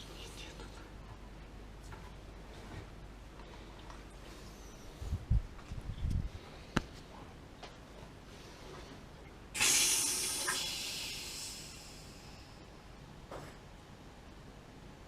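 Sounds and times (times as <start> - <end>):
loud hiss: 9.6 - 12.5.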